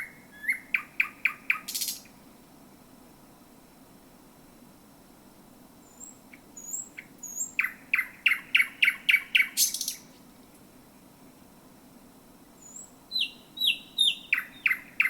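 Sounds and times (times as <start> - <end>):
nightingale singing: 0.0 - 2.2, 5.8 - 10.1, 12.6 - 15.0.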